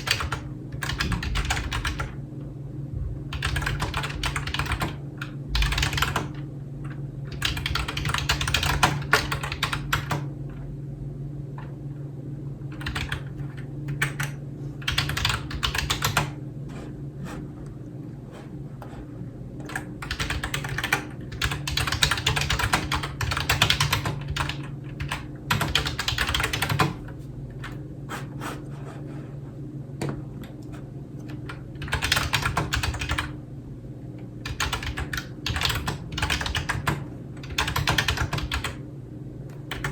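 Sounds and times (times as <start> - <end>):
typing on computer keyboard: 0.0 - 2.2, 3.3 - 6.4, 7.3 - 10.3, 12.8 - 16.4, 19.6 - 27.8, 31.3 - 33.3, 34.4 - 38.8, 39.6 - 39.9
steady low hum: 0.0 - 39.9.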